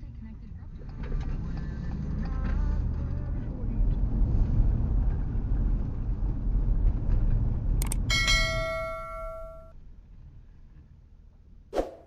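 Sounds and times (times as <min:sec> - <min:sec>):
low vehicle rumble: 0:00.0 - 0:11.6
sharp clicks: 0:07.8 - 0:08.1
bell-like ding: 0:07.9 - 0:09.7.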